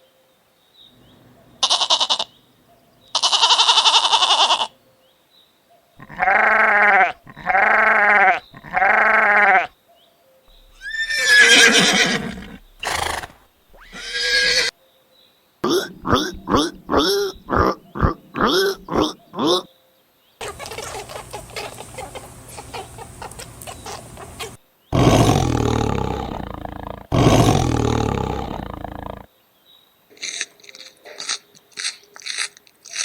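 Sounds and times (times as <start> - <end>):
farm animal calls: 1.4 - 2.4, 3.1 - 4.8, 6.0 - 9.8, 10.5 - 14.7, 15.6 - 19.7, 20.4 - 29.3.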